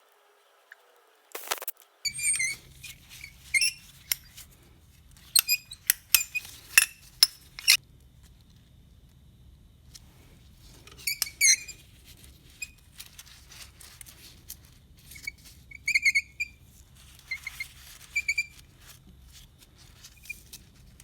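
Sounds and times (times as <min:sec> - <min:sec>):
metal tools clinking: 0:05.4 - 0:07.8.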